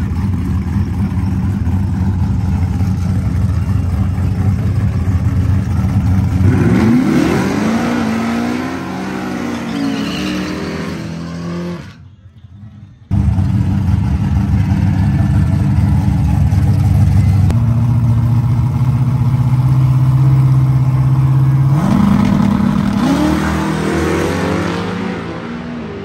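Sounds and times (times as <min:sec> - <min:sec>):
racing engine revving: 0:06.0 - 0:12.0, 0:21.6 - 0:26.0.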